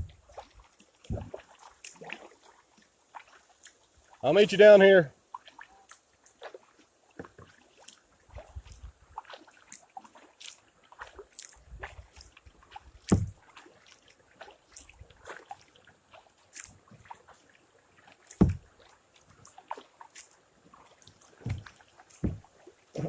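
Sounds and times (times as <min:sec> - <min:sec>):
paddle splashing in water: 0:00.0 - 0:23.0
water dripping off paddle: 0:00.0 - 0:23.0
low thumps: 0:13.1 - 0:13.4.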